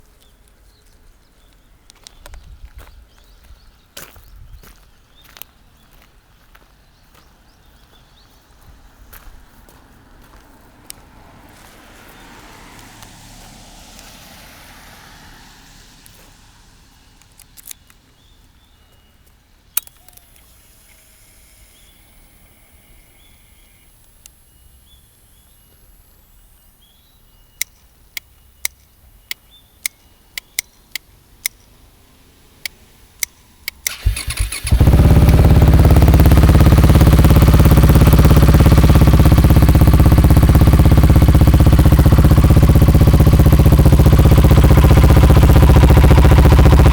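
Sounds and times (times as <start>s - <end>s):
sharp clicks: 19.7s - 21.0s, 27.6s - 31.7s, 32.6s - 39.7s
motorcycle engine starting and idling: 19.7s - 25.8s, 32.6s - 46.9s.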